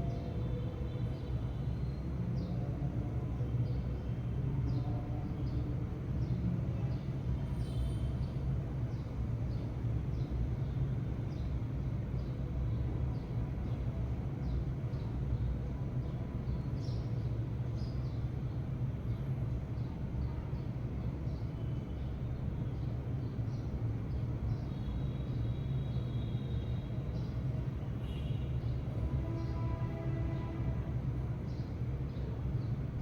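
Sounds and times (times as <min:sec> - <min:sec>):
sparrows chirping: 0:07.8 - 0:20.0, 0:20.6 - 0:33.0.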